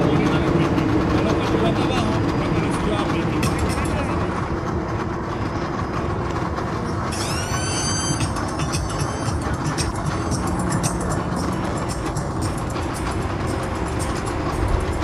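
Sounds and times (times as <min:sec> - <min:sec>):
engines rumbling: 0:00.0 - 0:15.0
high-pitched squeal: 0:05.7 - 0:15.0.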